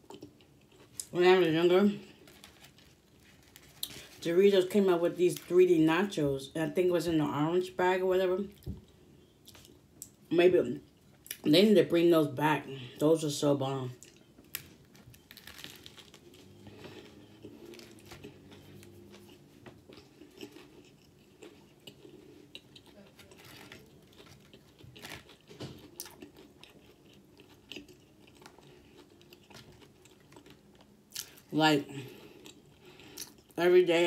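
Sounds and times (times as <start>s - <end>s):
person chewing crunchy sandwich: 0.0s - 1.1s, 2.0s - 4.2s, 14.0s - 31.5s, 32.1s - 33.6s.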